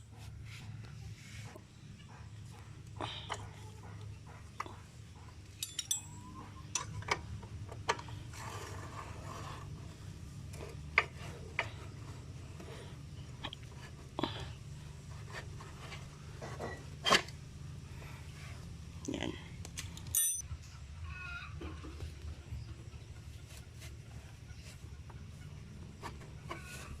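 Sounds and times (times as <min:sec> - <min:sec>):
metallic clinks of hand tools: 0:05.6 - 0:06.4, 0:20.0 - 0:20.4.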